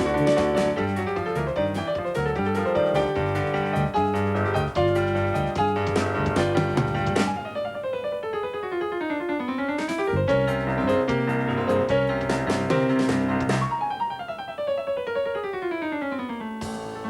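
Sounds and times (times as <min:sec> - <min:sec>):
fast piano runs: 0:00.0 - 0:07.8, 0:09.3 - 0:14.0.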